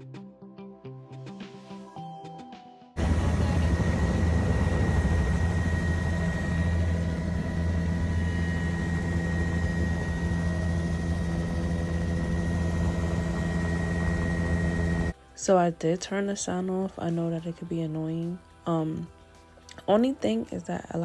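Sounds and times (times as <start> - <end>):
helicopter rotor and engine drone: 3.0 - 15.2
high-pitched whine: 3.0 - 15.2.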